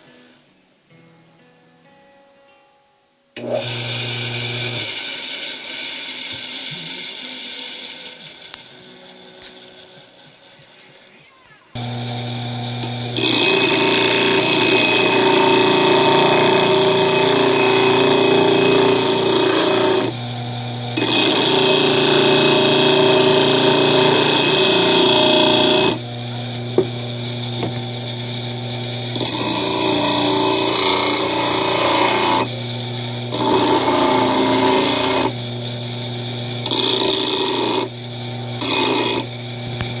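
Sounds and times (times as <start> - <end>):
motor hum: 11.8 - 40.0
sanding disc rasping: 12.8 - 20.2, 21.0 - 27.9, 29.2 - 32.5, 33.3 - 35.4, 36.6 - 38.0, 38.6 - 39.3.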